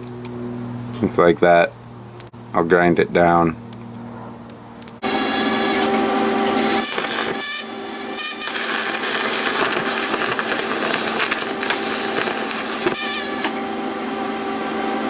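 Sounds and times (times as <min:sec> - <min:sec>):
electric grinder grinding steel: 0:05.0 - 0:15.0.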